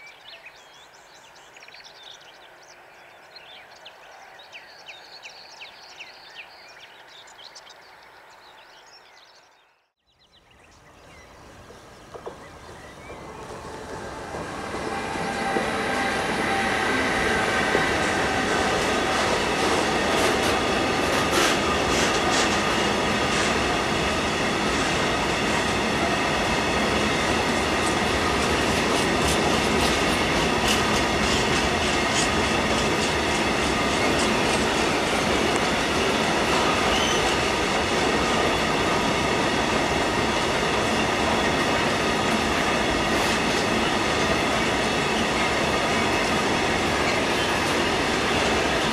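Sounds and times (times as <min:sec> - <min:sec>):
freight train rolling past: 0:10.5 - 0:48.9.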